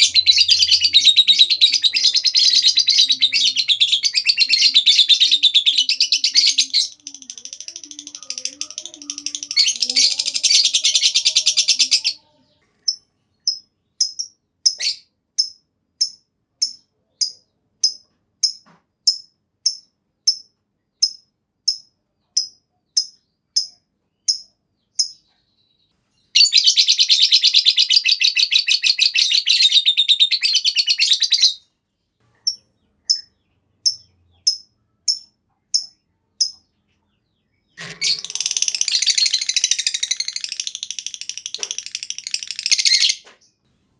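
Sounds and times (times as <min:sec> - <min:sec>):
lovebird high-pitched trill: 0:00.0 - 0:12.2, 0:37.8 - 0:43.2
bird sharp chirps: 0:12.8 - 0:31.6, 0:32.3 - 0:43.6.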